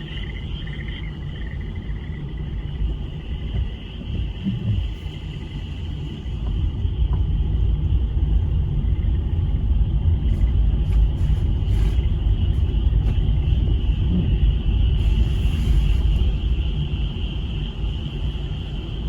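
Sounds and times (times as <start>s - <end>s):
frogs trilling: 0.0s - 6.3s
loud low rumble: 0.9s - 5.8s, 6.6s - 18.0s.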